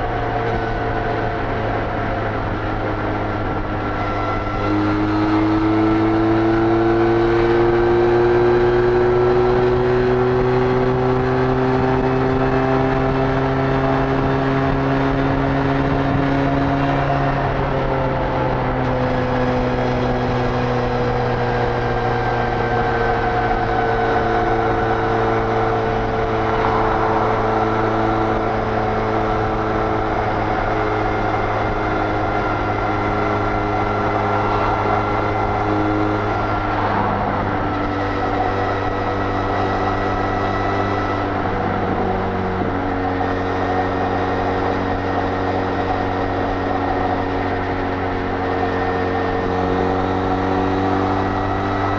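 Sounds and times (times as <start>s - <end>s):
motorcycle engine at high revs: 0.0s - 51.9s
wind rush: 21.6s - 48.8s.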